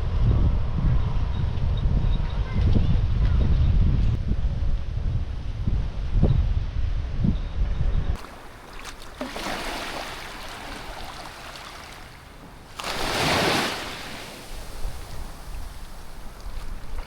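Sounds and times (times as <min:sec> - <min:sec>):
small waves washing onto beach: 0:08.2 - 0:17.0.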